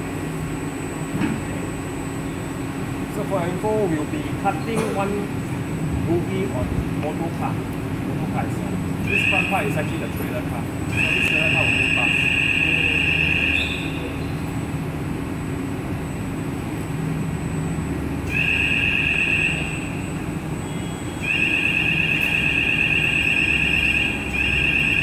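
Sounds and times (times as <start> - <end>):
low machinery hum: 0.0 - 25.0
two-tone electronic warning alarm: 9.0 - 14.4, 18.2 - 25.0.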